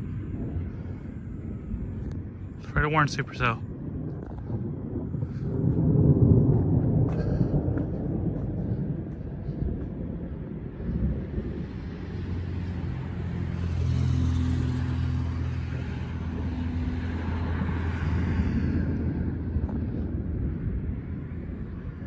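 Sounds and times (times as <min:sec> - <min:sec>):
tyre and road noise: 0:00.0 - 0:22.0
vehicle engine hum: 0:00.0 - 0:22.0
vehicle passing by: 0:04.6 - 0:21.5.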